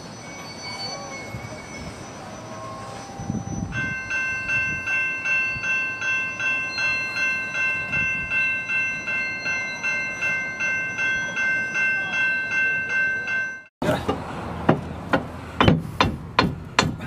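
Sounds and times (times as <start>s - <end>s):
bell ringing rapidly: 0.3s - 13.7s.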